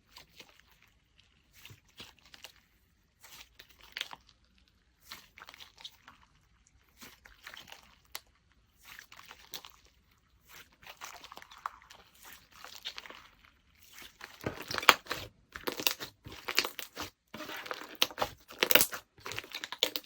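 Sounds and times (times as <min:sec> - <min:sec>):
slime crackling and popping: 0:11.2 - 0:20.0.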